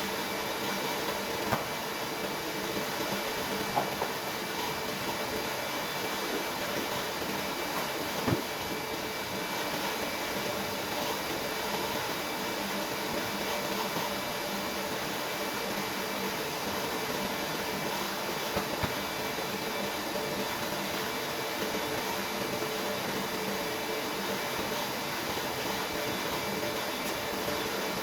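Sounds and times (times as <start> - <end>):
pump hum with high whine: 0.0 - 28.0.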